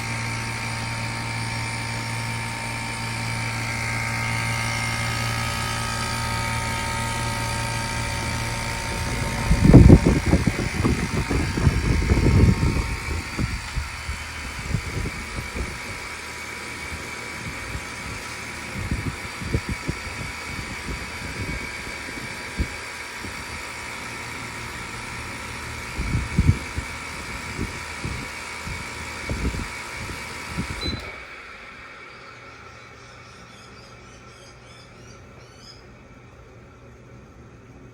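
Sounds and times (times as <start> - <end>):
air conditioner unit whine: 0.0 - 37.9
low machine hum: 0.0 - 37.9
low thuds and rumbles: 8.1 - 16.0.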